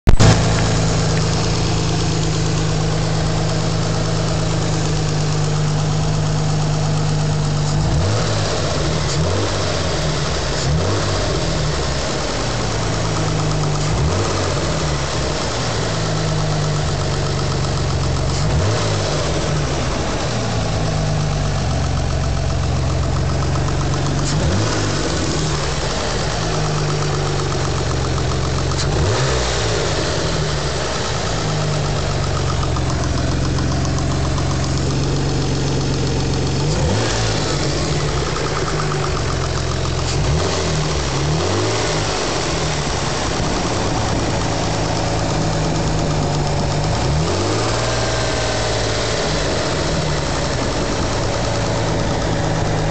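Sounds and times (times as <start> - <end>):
car engine idling: 0.0 - 52.9
fast light engine ticking: 0.1 - 52.9.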